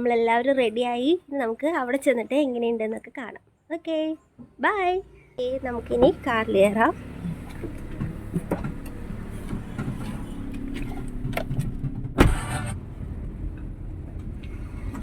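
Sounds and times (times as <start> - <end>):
car door slamming: 9.5 - 12.7.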